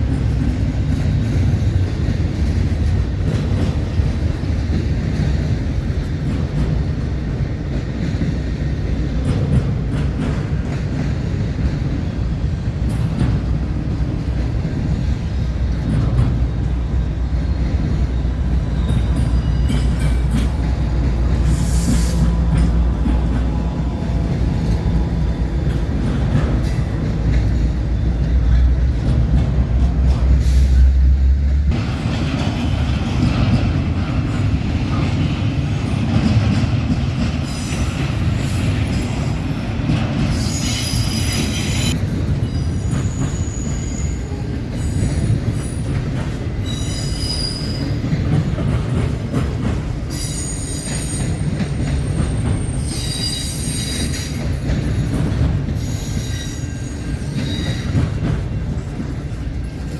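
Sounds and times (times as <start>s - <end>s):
freight train rumbling: 0.0s - 59.9s
train cars going by: 0.0s - 59.9s
train wheel squeal: 15.8s - 28.9s, 37.3s - 49.0s, 50.0s - 59.0s.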